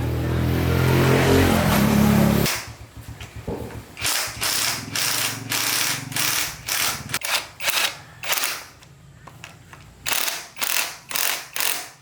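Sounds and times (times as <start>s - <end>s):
mechanical ratcheting strokes: 4.0s - 8.8s, 10.0s - 12.0s.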